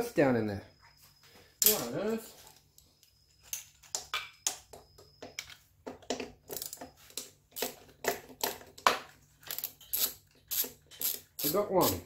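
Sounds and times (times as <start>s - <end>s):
hand tools clicking and clinking: 1.6s - 12.0s.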